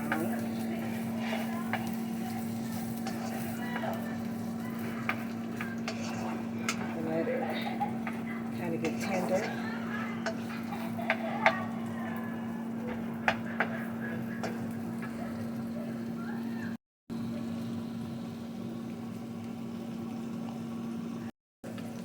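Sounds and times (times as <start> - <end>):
utensil clinking against pan: 0.0 - 11.9, 12.8 - 15.2
steady low hum: 0.0 - 16.2
vegetables sizzling in a frying pan: 0.0 - 16.6.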